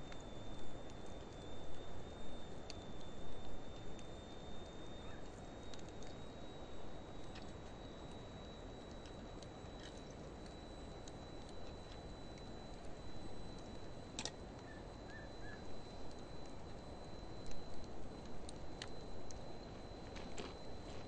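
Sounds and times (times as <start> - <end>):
fire crackles and pops: 0.0 - 21.0.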